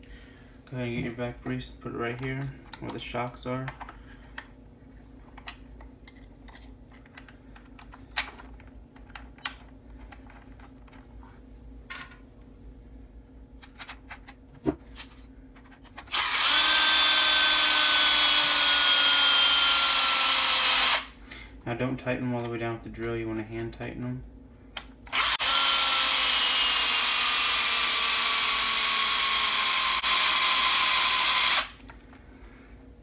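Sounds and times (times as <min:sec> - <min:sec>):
power drill whining: 0:16.1 - 0:21.1, 0:25.1 - 0:31.8.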